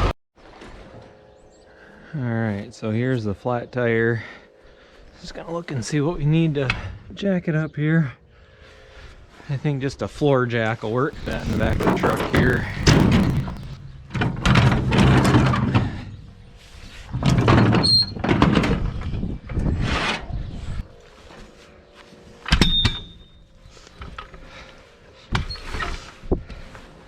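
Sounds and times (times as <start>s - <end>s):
metal scraping and squealing: 11.2s - 13.8s.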